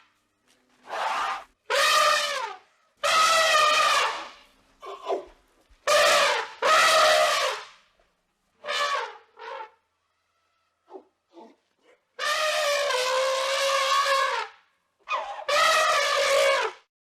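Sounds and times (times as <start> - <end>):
animal calling with long cries: 12.2 - 16.8.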